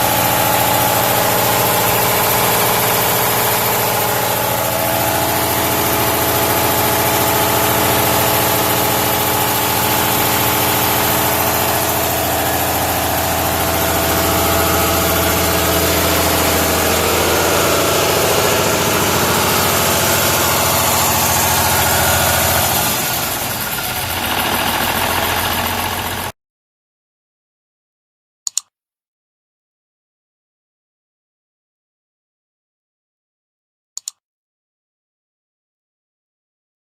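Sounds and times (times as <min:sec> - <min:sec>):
diesel engine running: 0:00.0 - 0:26.3.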